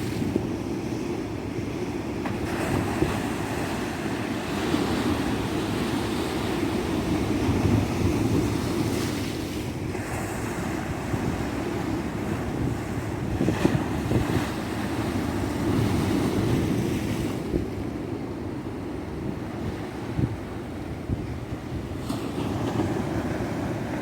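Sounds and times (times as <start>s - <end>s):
ocean surf breaking on beach: 2.0s - 24.0s
wind buffeting microphone: 2.5s - 24.0s.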